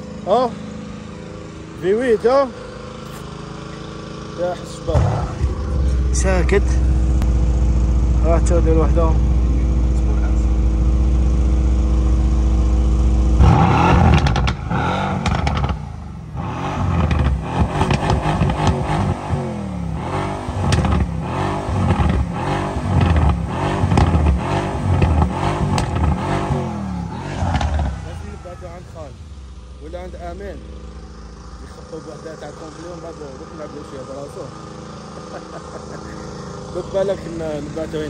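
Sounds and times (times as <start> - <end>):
car engine idling and revving: 0.0 - 38.0
exhaust cracks: 1.8 - 38.0.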